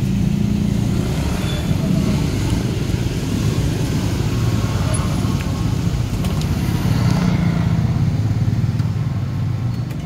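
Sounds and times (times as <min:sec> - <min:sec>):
minivan engine rumble: 0:00.0 - 0:10.0
street traffic: 0:00.0 - 0:10.0.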